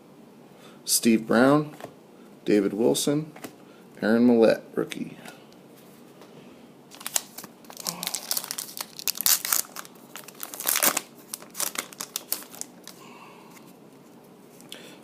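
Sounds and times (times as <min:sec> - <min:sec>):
wrapper crinkling and crackling: 0:06.9 - 0:13.0.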